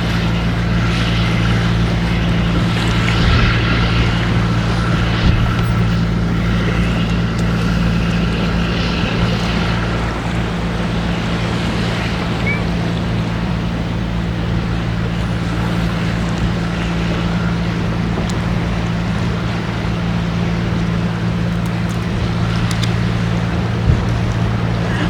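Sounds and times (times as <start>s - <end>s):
engine humming: 0.0s - 25.0s
wind rushing: 1.6s - 7.0s.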